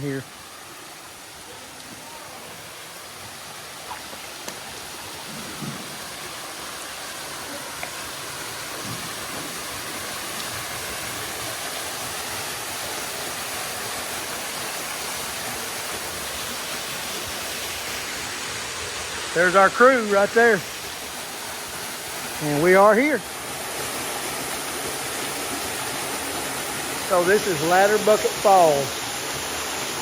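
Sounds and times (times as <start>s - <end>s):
waterfall rushing: 0.0s - 30.0s
faint knocks: 5.3s - 6.0s.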